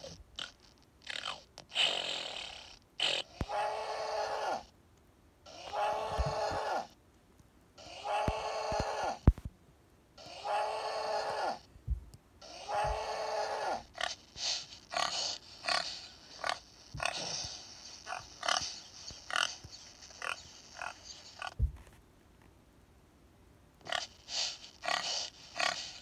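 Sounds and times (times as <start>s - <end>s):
long animal calls: 0.0s - 4.7s, 5.5s - 7.0s, 7.8s - 9.3s, 10.2s - 11.7s, 12.4s - 21.6s, 23.8s - 26.0s
pig grunts and squeals: 0.0s - 4.7s, 5.4s - 7.0s, 7.8s - 9.3s, 10.2s - 11.7s, 12.4s - 21.6s, 23.8s - 26.0s.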